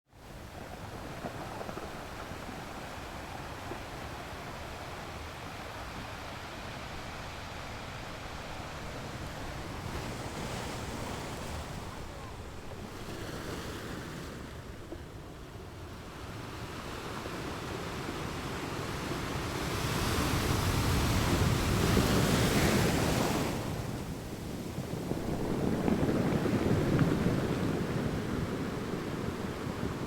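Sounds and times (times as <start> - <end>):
ocean surf breaking: 0.2 - 30.0.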